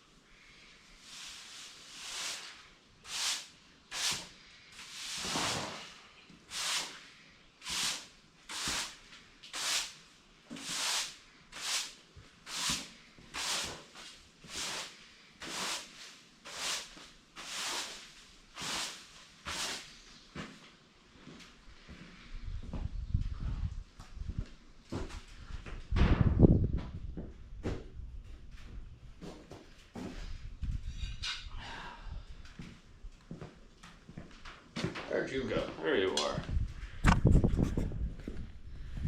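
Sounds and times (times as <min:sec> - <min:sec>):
broom sweeping strokes: 0:00.6 - 0:20.1.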